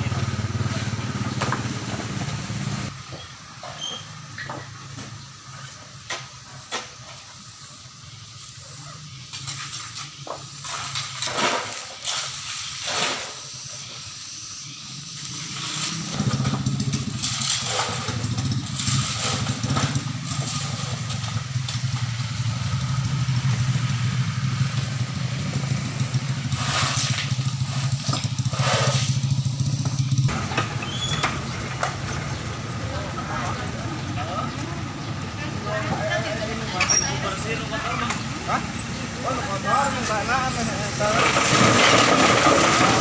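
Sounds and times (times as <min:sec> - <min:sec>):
engine running: 0:00.0 - 0:43.0
short hissing sweeps: 0:26.3 - 0:27.8.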